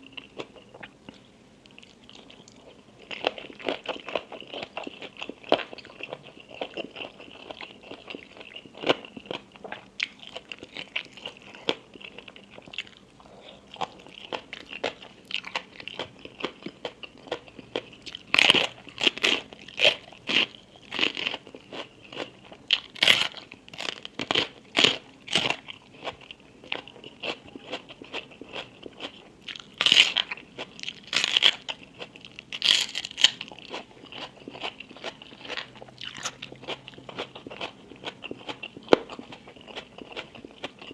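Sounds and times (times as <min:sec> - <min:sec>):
crisp food crunching: 0:00.1 - 0:13.1, 0:13.7 - 0:40.9.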